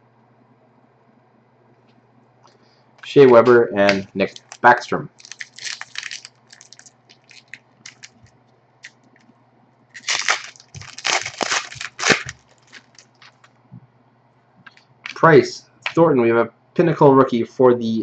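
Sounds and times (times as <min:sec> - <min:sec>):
low electrical hum: 0:00.0 - 0:18.0
card wrapper crinkling: 0:03.9 - 0:09.0, 0:10.0 - 0:13.5.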